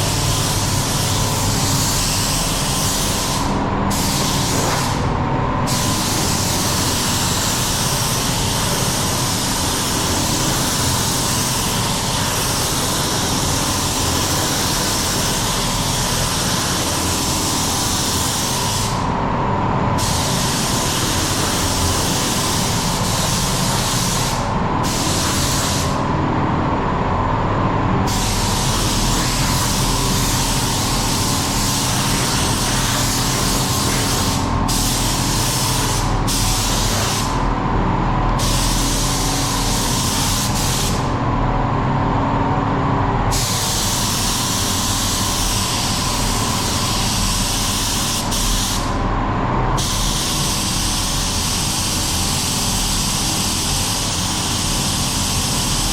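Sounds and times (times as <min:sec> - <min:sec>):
paint spray gun hissing: 0:00.0 - 0:05.1, 0:05.7 - 0:19.1, 0:20.0 - 0:26.0, 0:28.0 - 0:37.4, 0:38.4 - 0:41.1, 0:43.3 - 0:48.9, 0:49.8 - 0:55.9.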